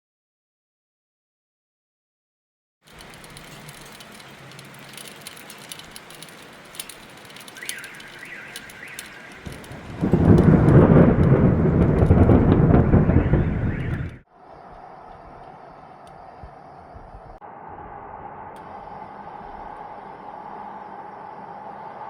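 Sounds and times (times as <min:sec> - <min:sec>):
raindrop ticks: 0:02.9 - 0:17.4
steady rain falling: 0:02.9 - 0:17.4, 0:18.5 - 0:22.0
rolling thunder: 0:07.3 - 0:14.3.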